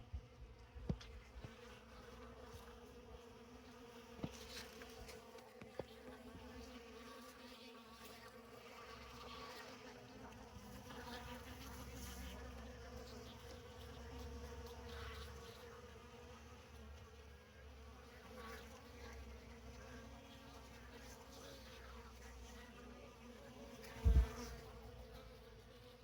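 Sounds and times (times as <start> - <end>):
bees buzzing: 23.7 - 25.2.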